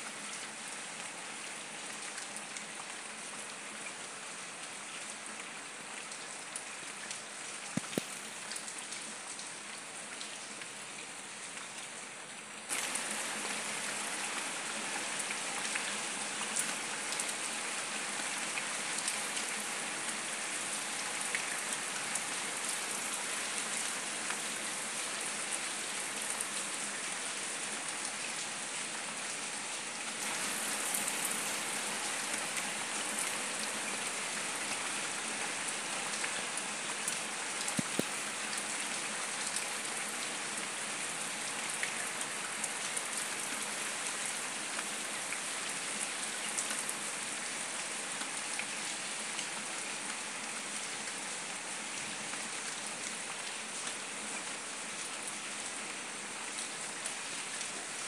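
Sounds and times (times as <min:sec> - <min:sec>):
rain on leaves and paving: 0:00.0 - 0:58.0
rain drop ticks: 0:06.5 - 0:09.5, 0:37.0 - 0:38.6.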